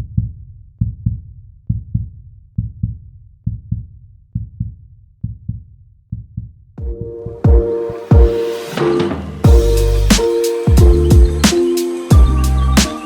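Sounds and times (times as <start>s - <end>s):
low heartbeat-style double thump: 0.0s - 8.3s, 10.7s - 11.4s.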